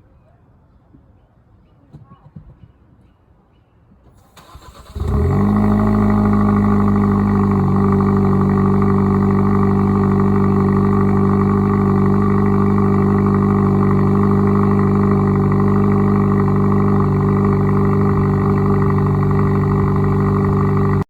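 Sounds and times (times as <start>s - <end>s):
car engine cold start and idle: 4.2s - 21.0s.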